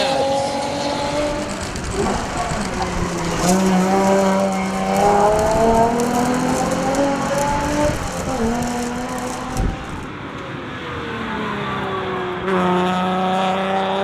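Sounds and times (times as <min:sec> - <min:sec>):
car engine revving under load: 0:00.0 - 0:10.1.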